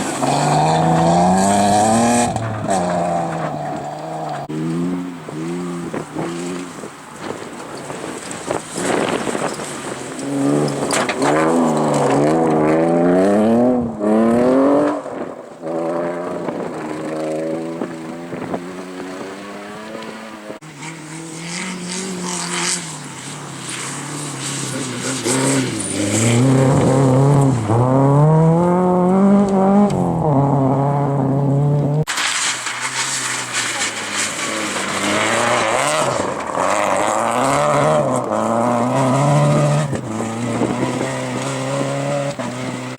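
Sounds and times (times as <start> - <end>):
rally car engine revving: 0.0 - 42.9
sharp cracks: 32.1 - 37.0.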